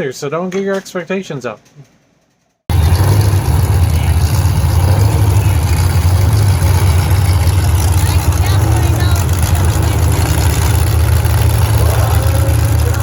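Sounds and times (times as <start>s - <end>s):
race car engines: 2.7s - 13.0s.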